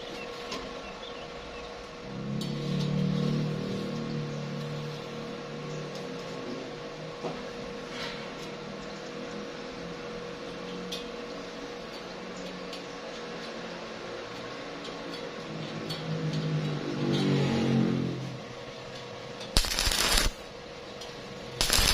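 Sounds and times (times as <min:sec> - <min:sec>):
loud pitched hum: 0:19.6 - 0:20.5, 0:21.6 - 0:21.9
machine hum: 0:19.6 - 0:20.5, 0:21.6 - 0:21.9.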